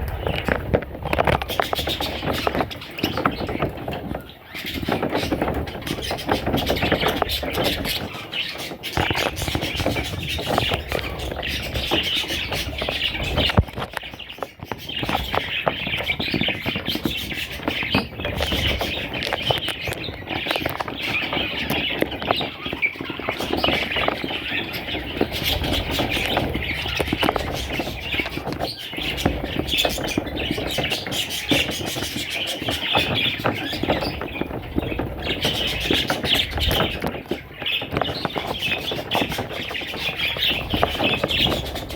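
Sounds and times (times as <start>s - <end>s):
budgerigars chirping: 0.0s - 41.9s.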